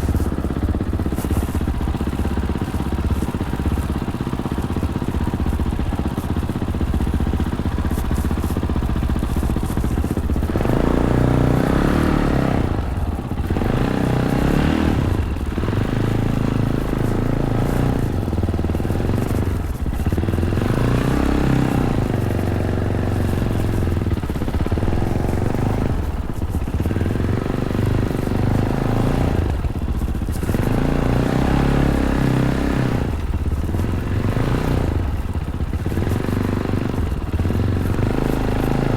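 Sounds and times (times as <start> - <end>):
bike clattering over rough ground: 0.0 - 11.3
motorcycle engine revving: 0.0 - 38.9.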